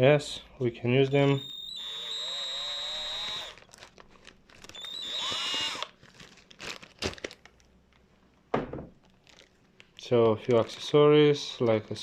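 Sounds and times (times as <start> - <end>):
plastic packaging squeaking rubs: 3.4 - 7.4.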